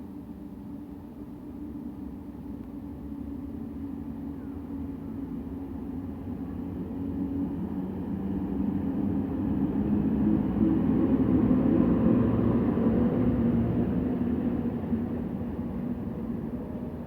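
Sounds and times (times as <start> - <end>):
passenger train rumbling: 6.4 - 17.0.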